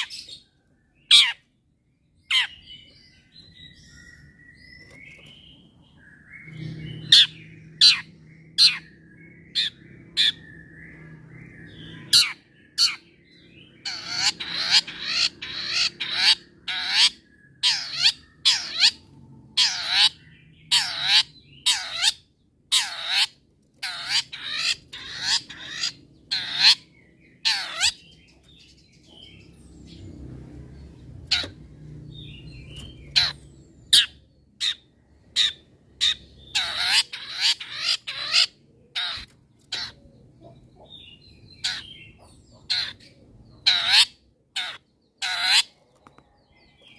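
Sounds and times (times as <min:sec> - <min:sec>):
bird twittering: 0:00.0 - 0:46.9
bird harsh scratchy calls: 0:01.1 - 0:01.4, 0:02.3 - 0:02.6, 0:06.4 - 0:08.9, 0:13.8 - 0:29.4, 0:31.2 - 0:40.0, 0:41.6 - 0:46.1.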